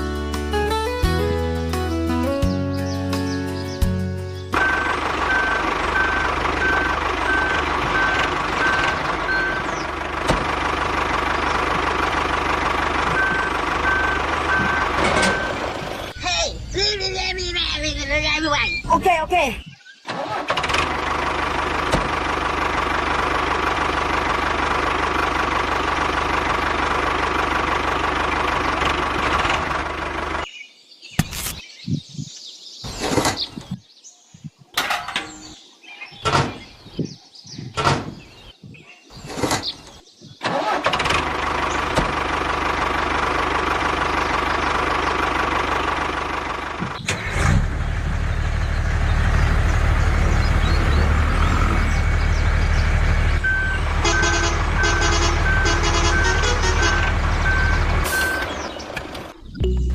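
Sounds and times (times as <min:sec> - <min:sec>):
engine running: 0:00.0 - 0:19.0, 0:20.1 - 0:30.5, 0:40.4 - 0:59.9.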